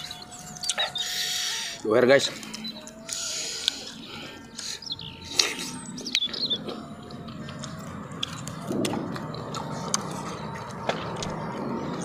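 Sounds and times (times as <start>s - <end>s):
close chewing with wet clicks: 5.3s - 11.8s.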